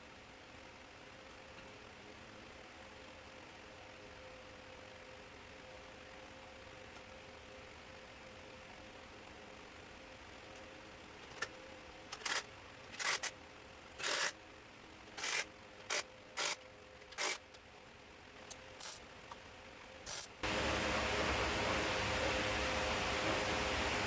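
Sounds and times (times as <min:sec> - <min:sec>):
faint steady hum: 0:00.0 - 0:24.0
welding crackling bursts: 0:15.2 - 0:17.4, 0:18.8 - 0:19.0, 0:20.1 - 0:20.4
loud steady rushing noise: 0:20.4 - 0:24.0.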